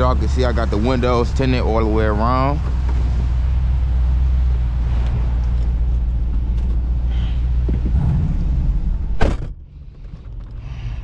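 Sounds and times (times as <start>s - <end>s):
low exhaust rumble: 0.0s - 11.0s
sharp knock: 7.9s - 9.6s.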